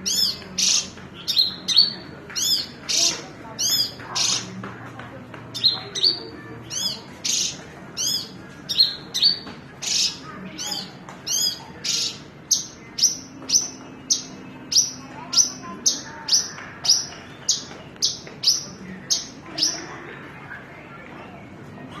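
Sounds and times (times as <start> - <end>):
lark singing: 0.1 - 4.5, 5.6 - 19.7.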